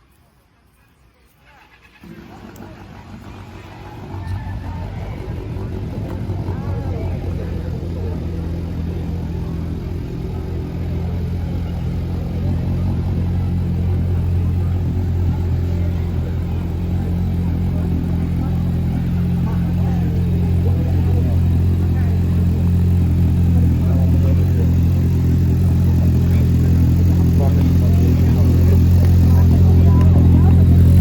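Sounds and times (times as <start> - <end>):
faint distant voices: 0.0 - 31.0
low mechanical hum: 0.0 - 31.0.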